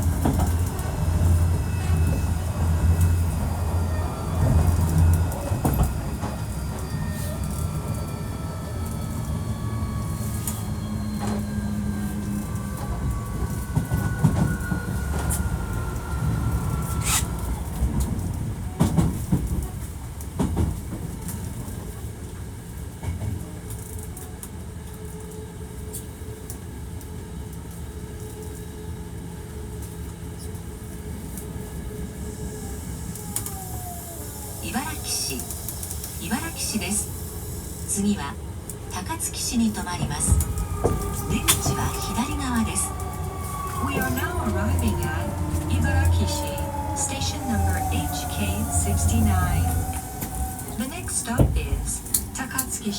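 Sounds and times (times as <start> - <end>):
wheels clicking over rail joints: 0.0 - 22.2, 38.5 - 52.9
train inverter whine: 0.0 - 52.9.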